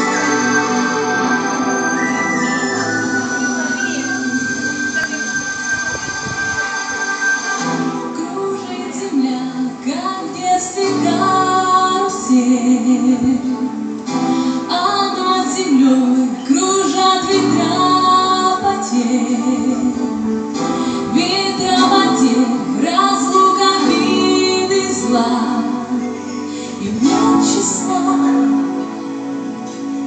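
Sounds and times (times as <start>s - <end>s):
instrumental backing: 0.0s - 30.0s
woman singing: 8.0s - 14.0s, 14.6s - 29.2s.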